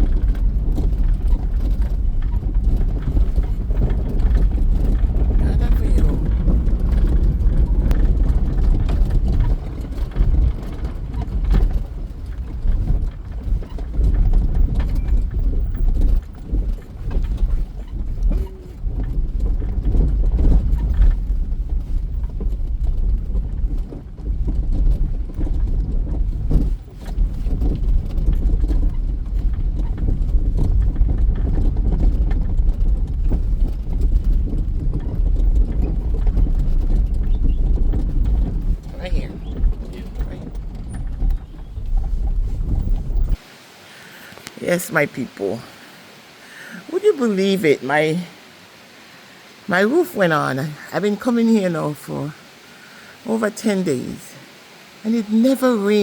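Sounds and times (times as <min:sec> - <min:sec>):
taxi driving from inside: 0:00.0 - 0:44.8.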